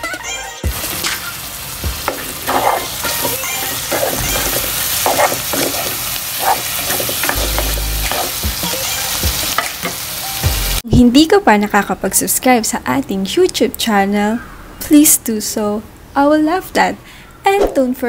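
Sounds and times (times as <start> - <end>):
meat and onion sizzling in oil: 0.6 - 10.8
spoon scraping a pot: 2.1 - 8.4.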